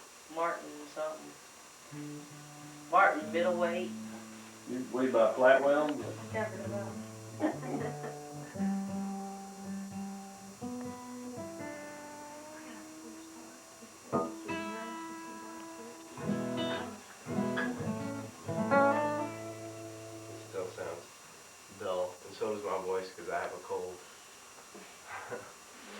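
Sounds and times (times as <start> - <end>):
acoustic guitar notes plucked: 1.9 - 5.0, 5.8 - 21.0
acoustic guitar chords strummed: 1.9 - 21.0
person talking: 2.9 - 4.0.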